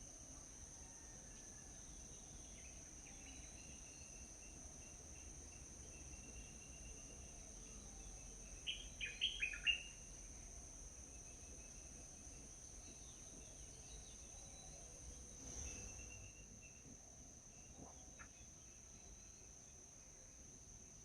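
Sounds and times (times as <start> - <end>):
small bird chirping: 8.6 - 10.1.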